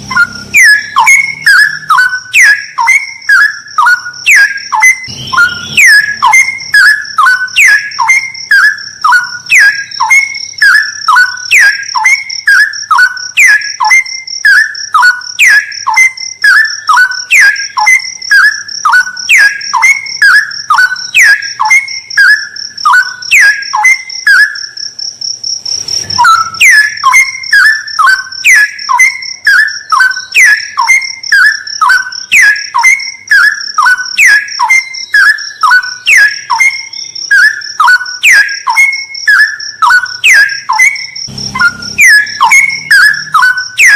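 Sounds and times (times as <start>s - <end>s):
high-pitched whine: 0.0s - 12.4s, 25.6s - 28.5s, 40.0s - 43.9s
bird whistled song: 0.0s - 24.8s, 26.0s - 43.9s.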